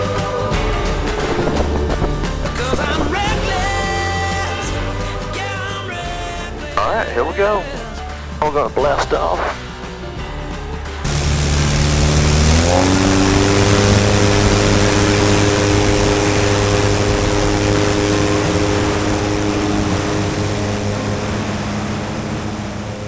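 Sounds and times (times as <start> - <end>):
aircraft engine at full throttle: 0.0 - 5.3, 11.0 - 23.0
heavy rushing noise: 0.4 - 4.8, 8.4 - 9.8, 11.0 - 23.0.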